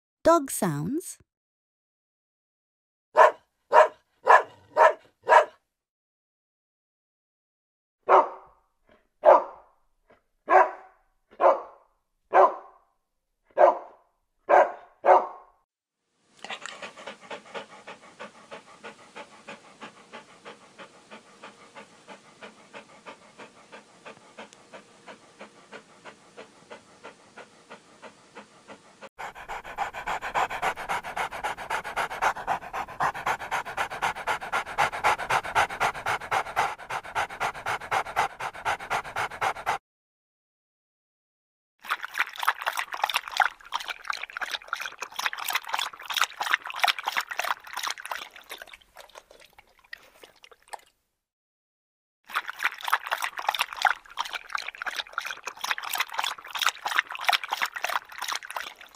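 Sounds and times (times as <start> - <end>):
dog barking: 3.2 - 5.6, 8.0 - 8.6, 9.2 - 9.7, 10.5 - 12.8, 13.5 - 15.5
dog panting quickly: 16.4 - 39.8, 42.4 - 50.3, 52.8 - 58.9.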